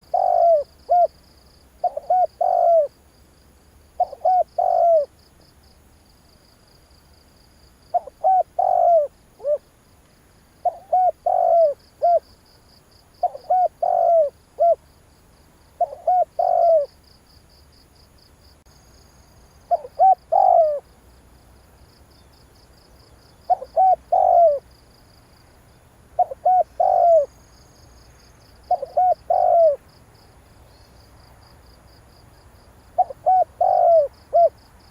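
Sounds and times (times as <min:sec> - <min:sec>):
dove cooing: 0:00.0 - 0:01.2, 0:01.8 - 0:03.0, 0:04.0 - 0:05.2, 0:07.9 - 0:09.7, 0:10.6 - 0:12.4, 0:13.2 - 0:14.8, 0:15.8 - 0:17.0, 0:19.7 - 0:20.9, 0:23.5 - 0:24.7, 0:26.2 - 0:27.4, 0:28.7 - 0:29.8, 0:33.0 - 0:34.6
faint high-pitched chirping: 0:00.0 - 0:02.9, 0:04.0 - 0:09.7, 0:10.6 - 0:14.9, 0:15.5 - 0:17.7, 0:18.5 - 0:20.9, 0:22.1 - 0:24.8, 0:25.9 - 0:31.5, 0:33.0 - 0:34.9.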